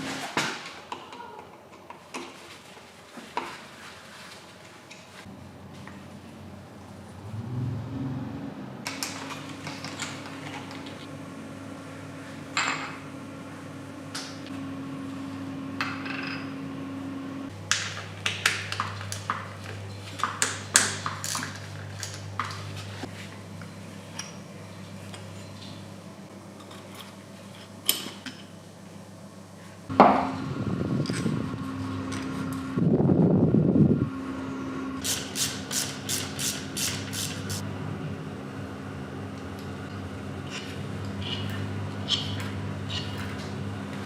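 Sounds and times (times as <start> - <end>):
steady low hum: 21.6 - 44.0.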